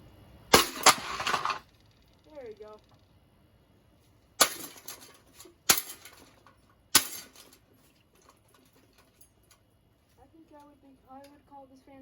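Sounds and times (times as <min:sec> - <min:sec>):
rattling clatter: 0:00.6 - 0:01.7, 0:04.4 - 0:09.6.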